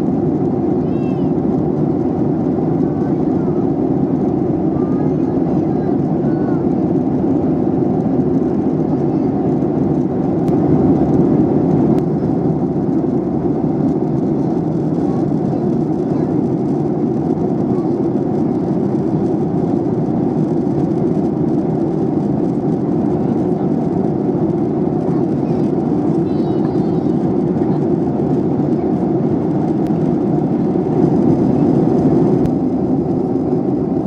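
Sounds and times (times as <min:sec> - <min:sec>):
jet airliner cabin noise: 0:00.0 - 0:34.0.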